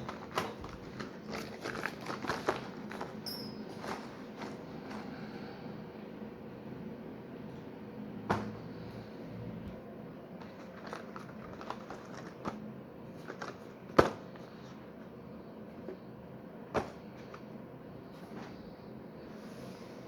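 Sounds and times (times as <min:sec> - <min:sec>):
packaging clicks and knocks: 0:10.4 - 0:12.6.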